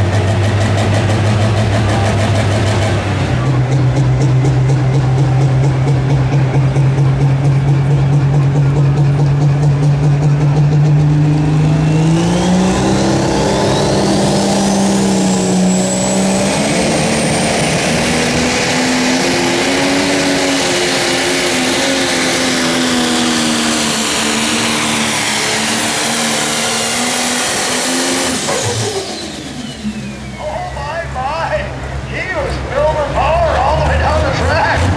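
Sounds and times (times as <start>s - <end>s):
diesel tractor engine revving: 0.0s - 34.9s.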